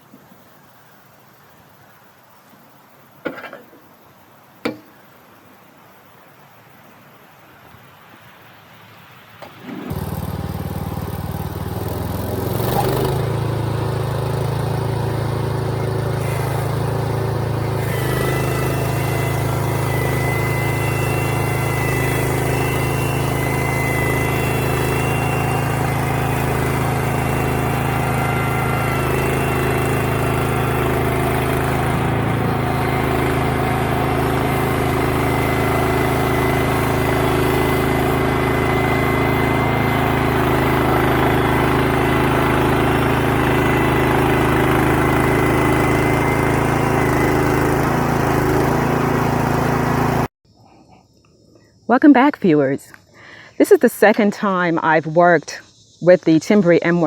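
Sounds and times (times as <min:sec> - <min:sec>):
sawmill engine running: 0:09.4 - 0:50.3.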